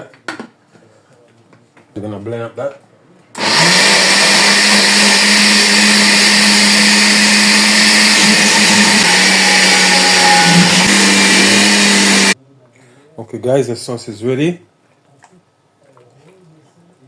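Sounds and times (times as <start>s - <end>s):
electric blender running: 3.4s - 12.4s.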